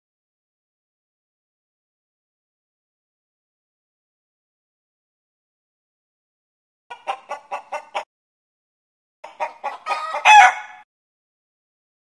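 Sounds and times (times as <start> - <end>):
chicken clucking: 6.9 - 8.1, 9.2 - 10.8.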